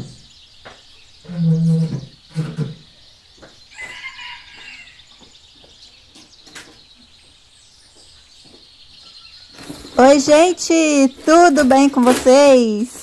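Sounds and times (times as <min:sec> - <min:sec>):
bird calls: 0:00.0 - 0:13.0
low animal call: 0:01.2 - 0:02.9.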